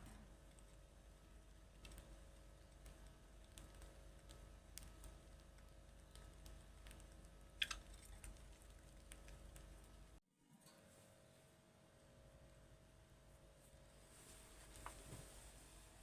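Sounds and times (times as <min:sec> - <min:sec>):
faint light clicks and ticks: 0:01.4 - 0:10.8.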